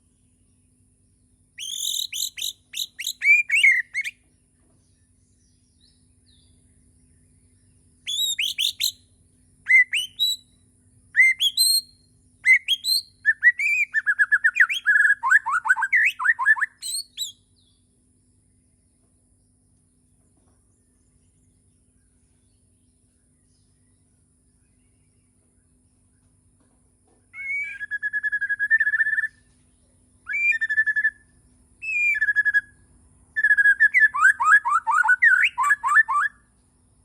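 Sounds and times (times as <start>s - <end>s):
songbird whistling and trilling: 1.6s - 4.2s, 8.0s - 17.8s, 27.3s - 29.5s, 30.2s - 36.5s.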